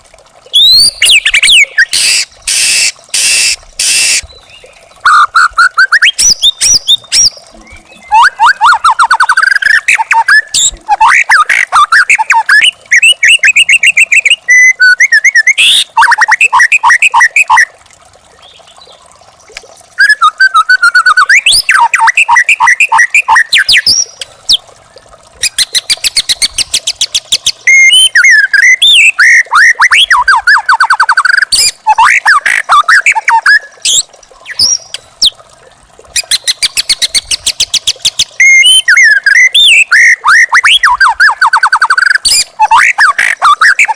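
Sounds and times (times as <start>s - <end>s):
bird singing whistled trills: 0.6s - 2.2s, 2.8s - 10.8s, 20.0s - 24.1s, 27.4s - 34.9s, 36.2s - 43.8s.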